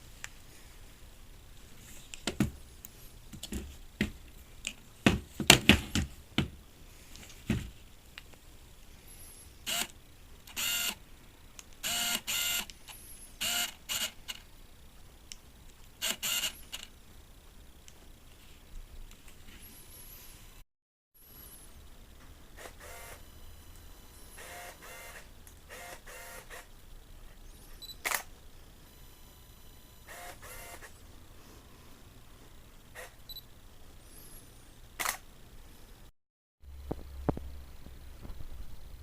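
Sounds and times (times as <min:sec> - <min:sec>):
small electric motor whirring: 0:09.2 - 0:09.9, 0:10.5 - 0:11.0, 0:11.8 - 0:14.4, 0:16.0 - 0:16.9, 0:22.6 - 0:23.2, 0:24.4 - 0:26.7, 0:30.1 - 0:30.9.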